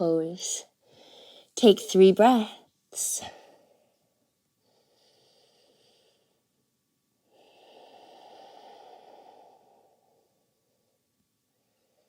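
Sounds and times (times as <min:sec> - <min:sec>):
person breathing slowly: 0:00.8 - 0:01.6, 0:03.3 - 0:06.6, 0:07.2 - 0:12.0.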